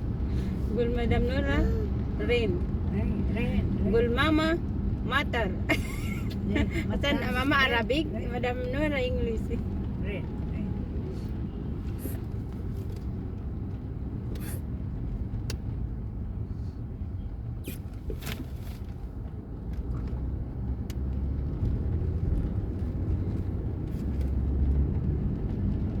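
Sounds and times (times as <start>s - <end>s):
car engine and tyres rumbling: 0.0s - 26.0s
brief sharp clicks or swishes: 17.6s - 18.8s.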